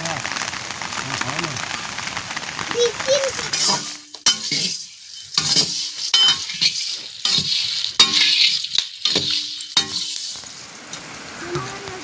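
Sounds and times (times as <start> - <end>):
food sizzling: 0.0 - 12.0
utensil scraping a pan: 3.0 - 11.1.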